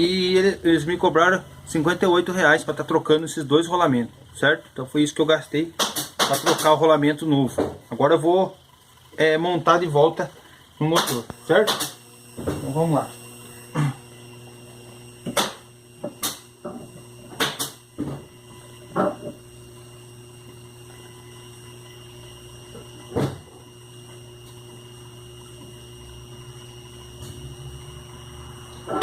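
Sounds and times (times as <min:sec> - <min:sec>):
knocks and clicks of machine parts: 0:05.8 - 0:06.8, 0:15.3 - 0:18.3.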